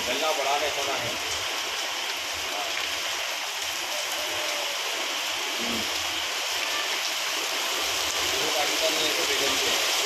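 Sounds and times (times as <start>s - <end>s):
heavy rain on wet pavement: 0.0s - 10.0s.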